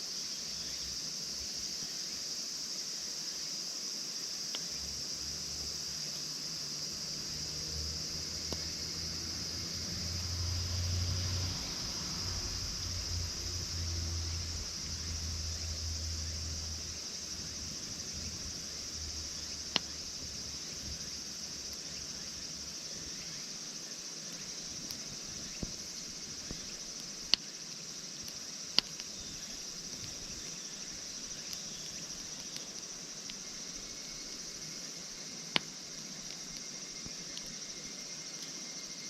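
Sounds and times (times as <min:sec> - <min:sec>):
insect chirring: 0:00.0 - 0:39.0
campfire pops: 0:08.3 - 0:09.0, 0:11.0 - 0:21.1, 0:24.3 - 0:27.6, 0:28.2 - 0:33.6, 0:35.4 - 0:37.6.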